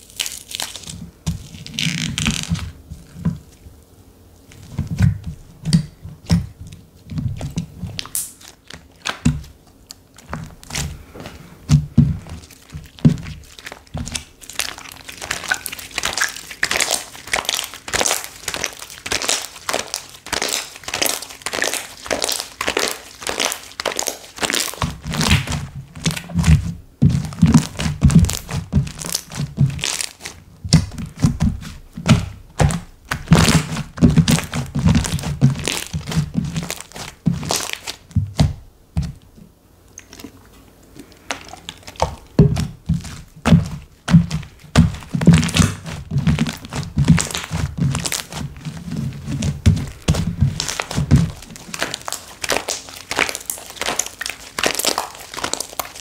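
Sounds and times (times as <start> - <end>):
slime clicking and popping: 12.3 - 39.1, 41.2 - 48.4, 49.4 - 56.0
deep thuds: 38.1 - 39.3, 42.0 - 51.6.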